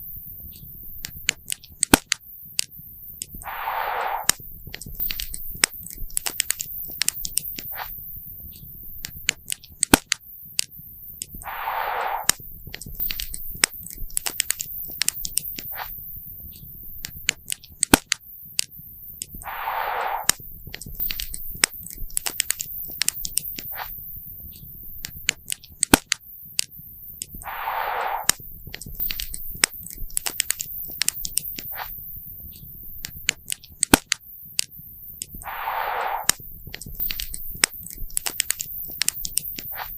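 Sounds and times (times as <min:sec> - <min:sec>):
short burst of hiss: 0:03.4 - 0:04.4, 0:11.4 - 0:12.4, 0:19.4 - 0:20.4, 0:27.4 - 0:28.4, 0:35.4 - 0:36.4.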